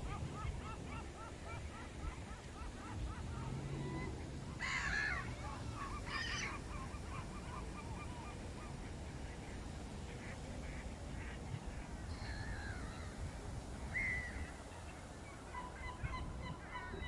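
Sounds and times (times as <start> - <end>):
gulls calling: 0.0 - 17.0.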